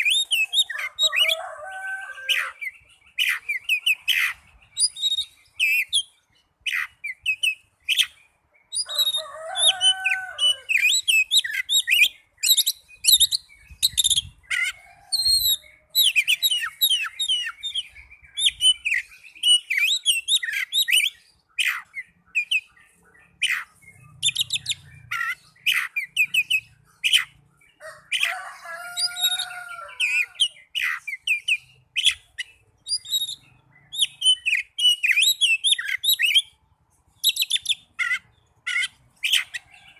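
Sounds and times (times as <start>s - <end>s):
bird singing chirps and whistles: 0.0s - 27.4s, 28.2s - 36.6s, 37.2s - 39.6s.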